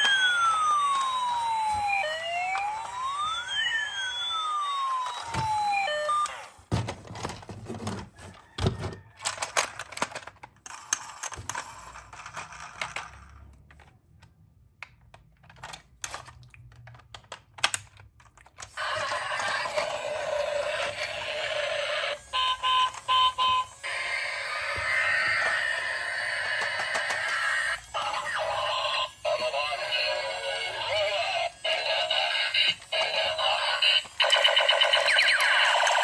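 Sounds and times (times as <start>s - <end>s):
electronic toy sound effect: 0.0s - 6.6s, 18.7s - 36.0s
toys clicking and clacking: 0.0s - 36.0s.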